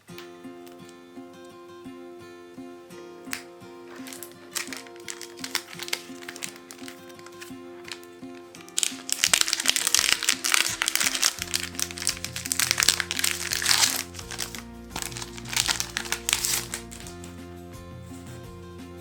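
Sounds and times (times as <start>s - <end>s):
background music: 0.0s - 19.0s
packaging crinkling: 3.3s - 17.3s.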